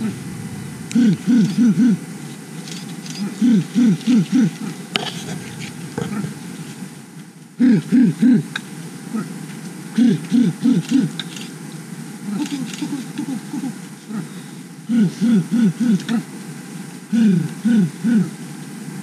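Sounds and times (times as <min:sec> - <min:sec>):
animal low hooting calls: 0:00.0 - 0:02.4, 0:03.1 - 0:06.7.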